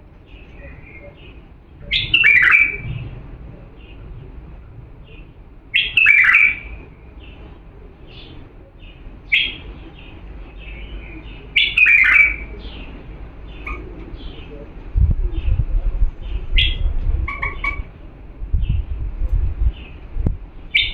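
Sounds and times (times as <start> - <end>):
soft bird chirping: 0.1 - 15.6
bulbul warbled phrases: 0.3 - 18.2.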